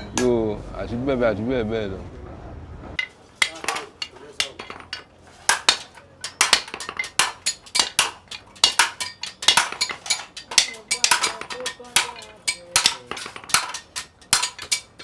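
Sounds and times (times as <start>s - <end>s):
hammers striking iron on anvil: 3.0s - 15.0s.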